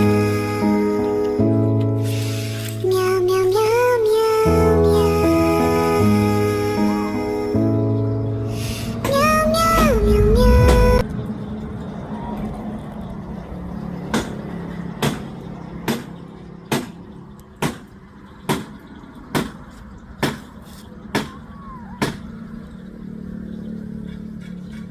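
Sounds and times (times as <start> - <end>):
steady background hum: 2.6 - 24.9
sharp knocking: 15.9 - 17.0, 17.6 - 17.9, 18.5 - 19.6.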